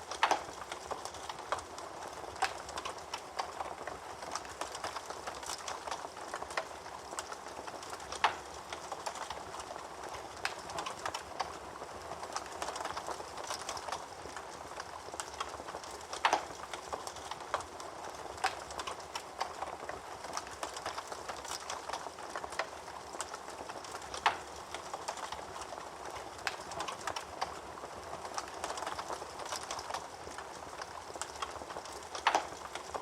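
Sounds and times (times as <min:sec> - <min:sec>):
wood fire crackling: 0:00.0 - 0:33.0
fire pops: 0:12.4 - 0:17.7, 0:28.3 - 0:33.0.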